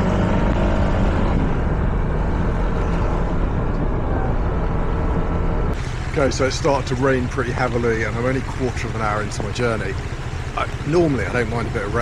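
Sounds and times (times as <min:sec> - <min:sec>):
rushing road noise: 0:00.0 - 0:12.0
scooter engine running: 0:05.8 - 0:12.0.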